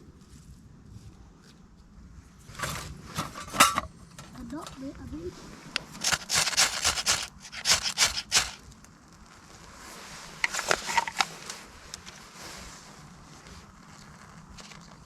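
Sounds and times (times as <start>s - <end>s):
crinkly rustling: 5.9s - 15.0s.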